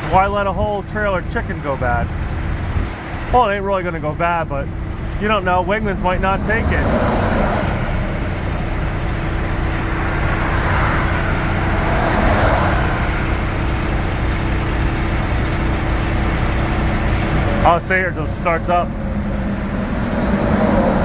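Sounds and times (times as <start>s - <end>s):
truck engine idling: 0.0s - 21.0s.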